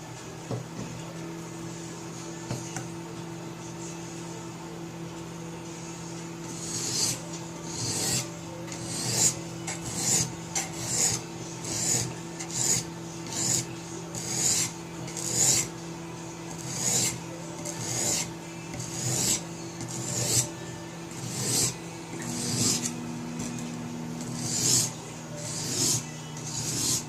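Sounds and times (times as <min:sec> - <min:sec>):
steady low hum: 0:00.0 - 0:27.0
sharpening stone rasping on knife: 0:06.5 - 0:15.7, 0:16.5 - 0:23.6, 0:24.2 - 0:27.0.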